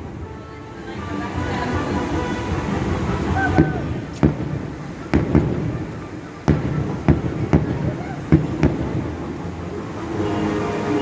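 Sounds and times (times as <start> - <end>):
low background murmur: 0.0 - 11.0
fireworks bursting: 1.6 - 9.6.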